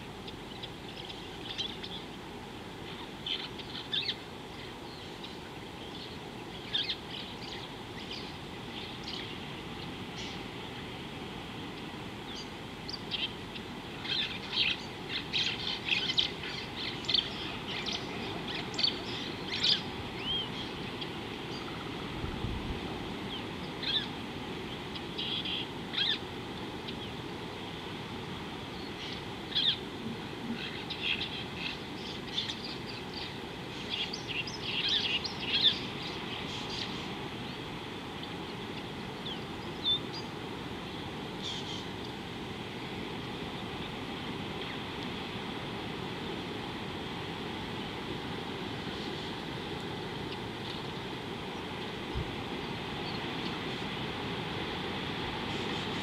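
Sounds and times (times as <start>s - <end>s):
low background hiss: 0.0s - 56.0s
small birds chirping: 0.2s - 10.8s, 11.6s - 22.2s, 23.2s - 27.2s, 28.7s - 42.2s.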